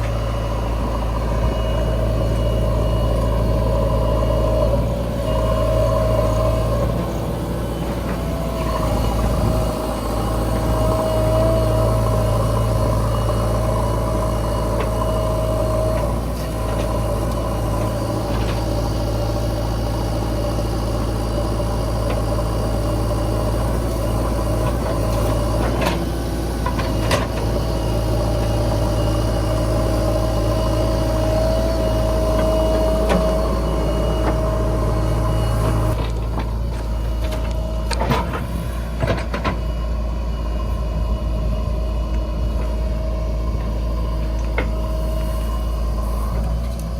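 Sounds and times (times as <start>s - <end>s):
high whine: 0.0s - 25.7s
diesel engine running: 0.0s - 46.9s.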